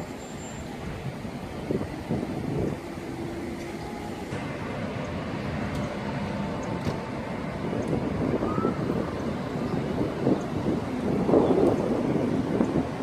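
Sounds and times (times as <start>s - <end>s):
passing vehicles rumbling: 0.0s - 13.0s
wind noise on microphone: 0.0s - 13.0s.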